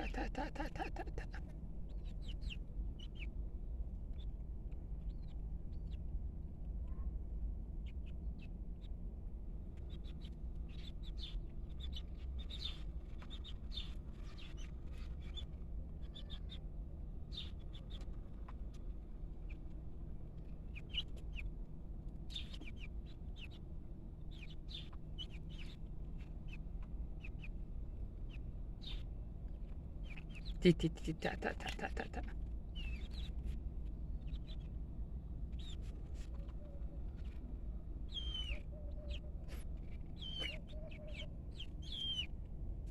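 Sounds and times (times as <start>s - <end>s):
chicks peeping: 0.0s - 3.3s, 9.8s - 16.6s, 20.4s - 21.5s, 22.3s - 27.6s, 28.2s - 33.6s, 34.2s - 34.8s, 35.5s - 37.4s, 38.1s - 42.3s.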